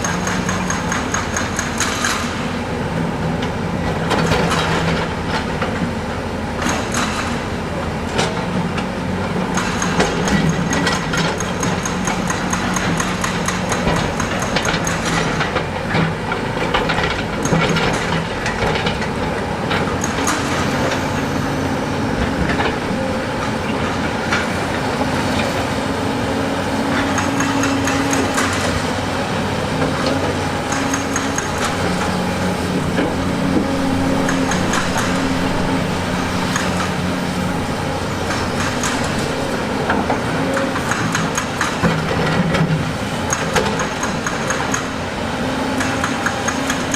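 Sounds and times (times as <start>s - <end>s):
diesel machine engine: 0.0s - 46.9s
metal and stone clanks: 29.8s - 42.4s.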